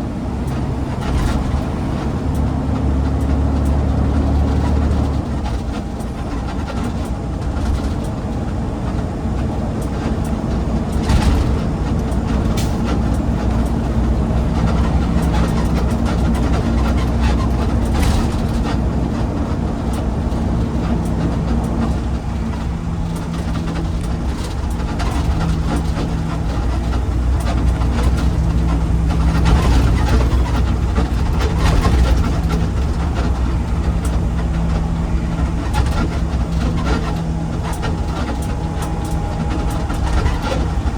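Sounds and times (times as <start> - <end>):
road rumble: 0.0 - 40.9
vehicle engine drone: 0.0 - 40.9
knocks and rattles: 8.9 - 40.9.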